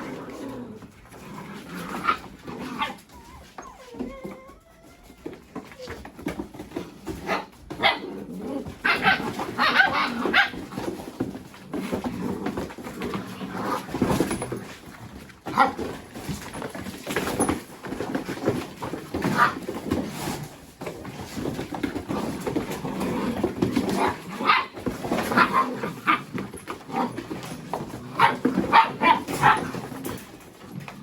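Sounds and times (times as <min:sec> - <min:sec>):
puppies barking and yipping: 0:01.1 - 0:11.2, 0:23.5 - 0:30.1.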